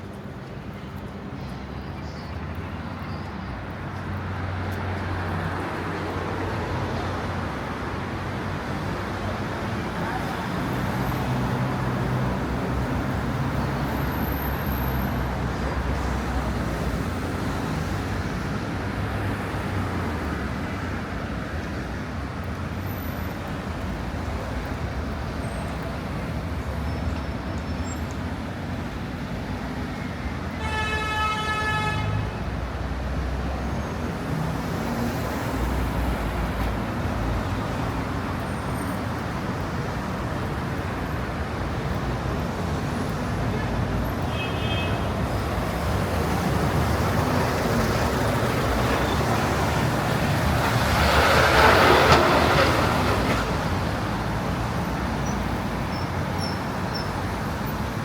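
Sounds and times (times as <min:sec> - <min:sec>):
cars passing: 0:00.0 - 0:58.0
vehicle horn: 0:30.6 - 0:32.4, 0:44.3 - 0:45.1.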